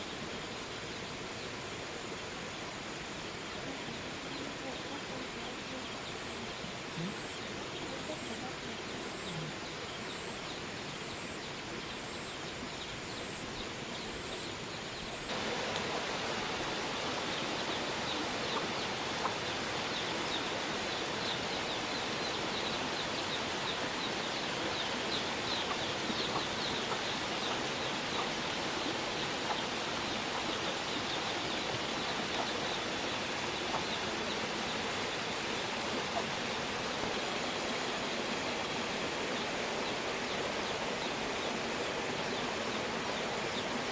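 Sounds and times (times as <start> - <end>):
steady outdoor hiss: 0.0 - 43.9.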